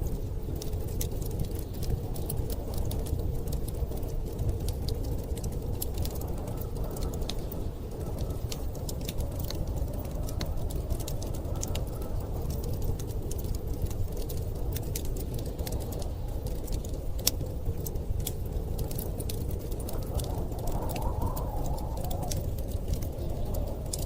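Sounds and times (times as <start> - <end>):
storm wind rumble: 0.0 - 24.0
wood fire crackling and popping: 0.0 - 24.0.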